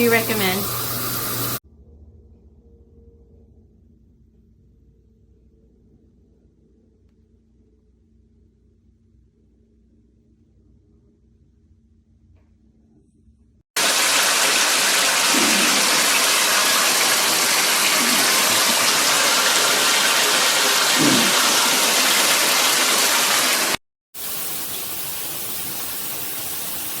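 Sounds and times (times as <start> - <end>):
shower head spraying water: 0.0 - 1.6, 13.8 - 27.0.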